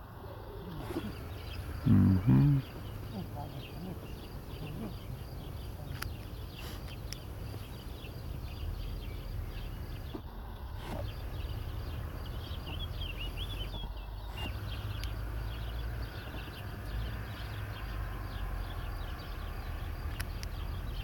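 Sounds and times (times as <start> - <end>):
small birds chirping: 0.0 - 21.0
whistled bird phrases: 0.2 - 10.2, 10.8 - 19.5
sharp clicks: 5.6 - 7.7, 20.0 - 20.7.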